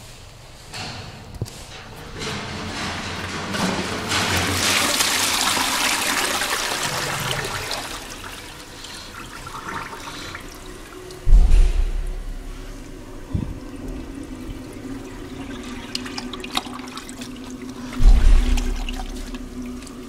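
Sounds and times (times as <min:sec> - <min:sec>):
toilet flushing: 0:01.8 - 0:20.0
low thump: 0:11.2 - 0:14.0, 0:18.0 - 0:19.6.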